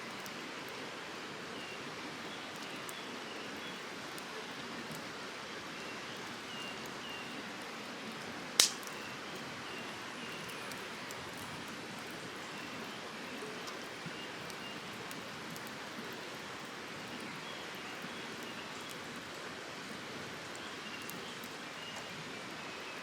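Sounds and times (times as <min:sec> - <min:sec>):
campfire hissing: 0:00.0 - 0:23.0
fire crackles: 0:00.0 - 0:23.0.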